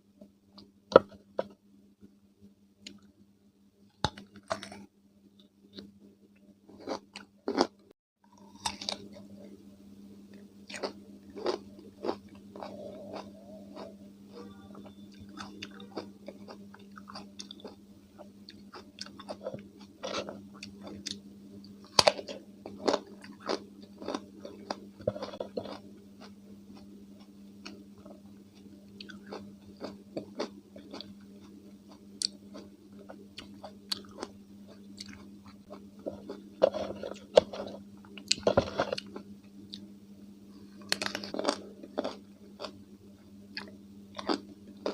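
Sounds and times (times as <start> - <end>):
steady low hum: 0.0 - 44.9
chewing crunchy cucumber: 6.7 - 9.6, 10.6 - 21.2, 21.8 - 39.8, 40.8 - 42.8, 43.5 - 44.9.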